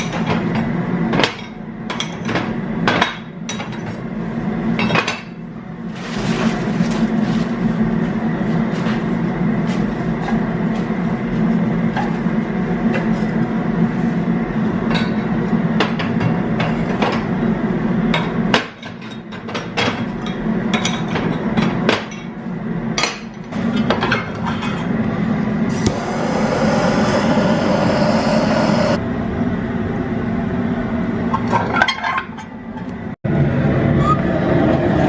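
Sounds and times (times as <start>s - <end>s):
steady rushing noise: 25.7s - 29.0s
steady low hum: 25.7s - 29.2s.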